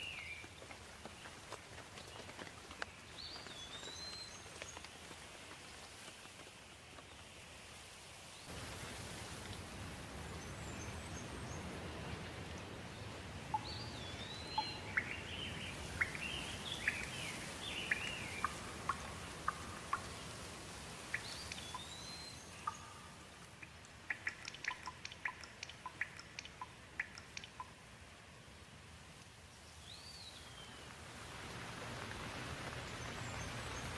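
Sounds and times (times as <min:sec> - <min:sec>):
songbirds singing: 0:00.0 - 0:05.2, 0:10.1 - 0:20.2, 0:21.0 - 0:27.8, 0:29.5 - 0:31.0, 0:32.1 - 0:33.9
steady rain: 0:00.0 - 0:33.9
sharp drips: 0:21.1 - 0:27.8.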